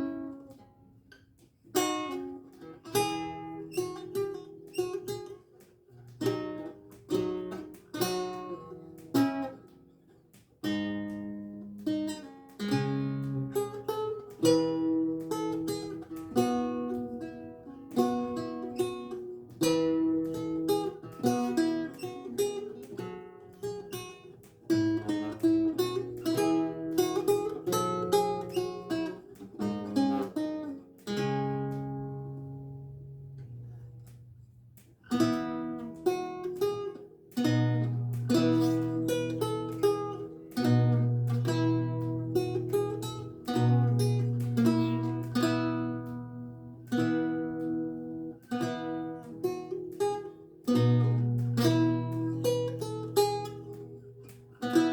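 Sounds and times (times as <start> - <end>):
lute plucked notes and chords: 0.0 - 54.9.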